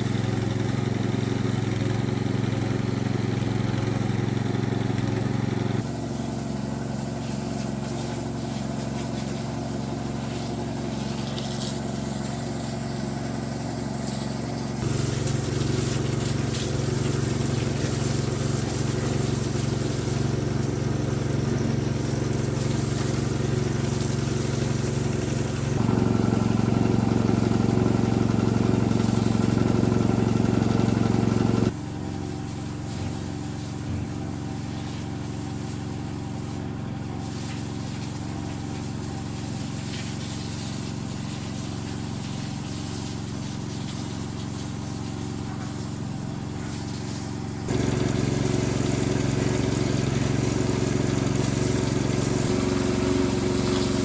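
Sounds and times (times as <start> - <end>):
motor running: 0.0 - 40.2, 44.7 - 54.0.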